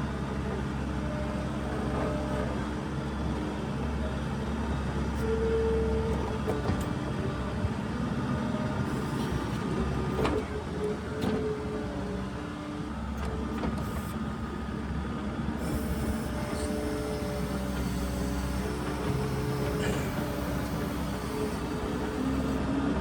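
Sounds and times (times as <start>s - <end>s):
diesel engine running: 5.8s - 23.0s.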